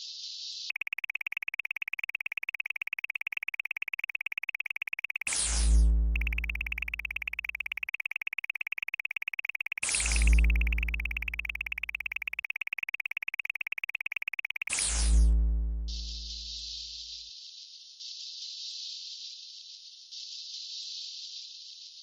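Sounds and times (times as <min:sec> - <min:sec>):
fast ticking buzz: 0:00.7 - 0:14.9
steady high synth tone: 0:00.7 - 0:16.6
deep bass hum: 0:15.0 - 0:16.8.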